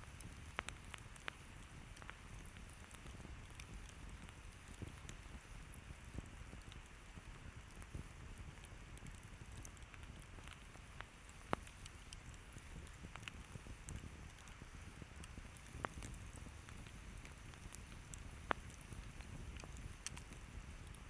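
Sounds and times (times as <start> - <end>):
campfire crackling and hissing: 0.0 - 21.0.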